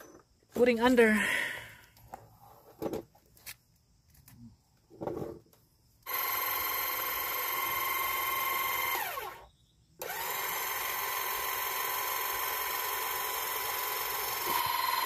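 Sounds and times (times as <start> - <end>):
electric motor whining: 6.1 - 9.4, 10.0 - 15.0.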